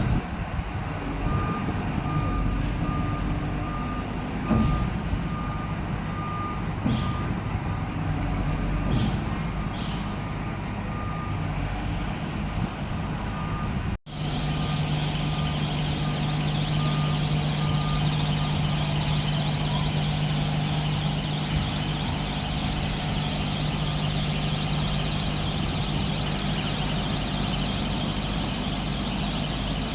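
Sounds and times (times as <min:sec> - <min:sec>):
excavator diesel engine running: 0:00.0 - 0:29.9
warning beeper: 0:13.4 - 0:29.9.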